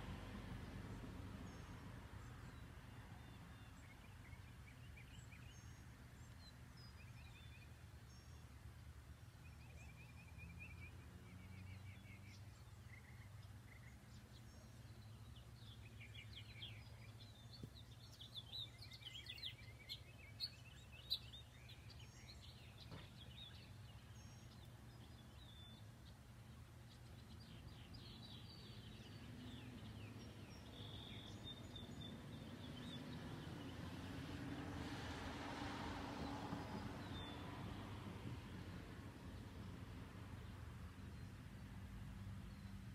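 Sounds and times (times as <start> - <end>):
birds chirping and trilling: 9.2 - 34.4.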